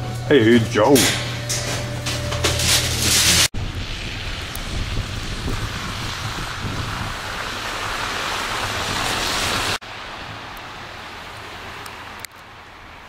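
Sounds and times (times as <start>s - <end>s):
wind noise on microphone: 3.4s - 10.4s.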